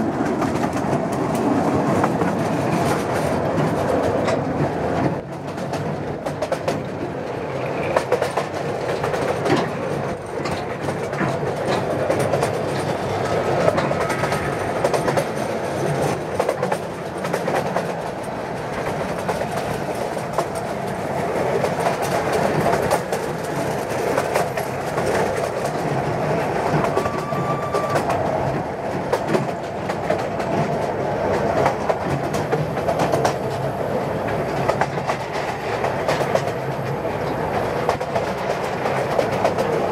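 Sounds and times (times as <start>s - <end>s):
train wheels rumbling on rail: 0.0s - 39.9s
high-pitched wheel squeals: 26.8s - 28.2s.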